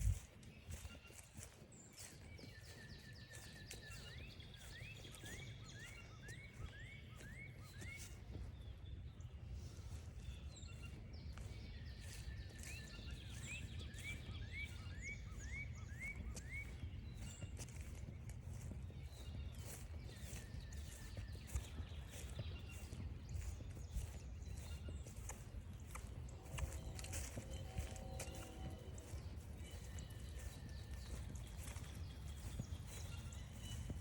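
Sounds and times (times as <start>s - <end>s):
songbird singing rising notes: 10.2s - 34.0s.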